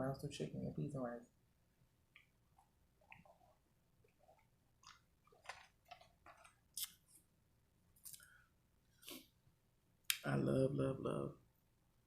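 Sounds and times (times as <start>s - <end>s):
person chewing food: 2.1s - 7.2s.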